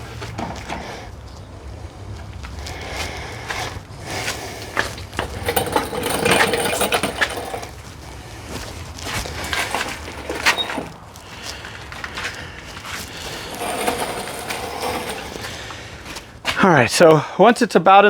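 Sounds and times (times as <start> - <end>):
motor assembly clinking and knocking: 5.2 - 7.7, 9.6 - 10.9.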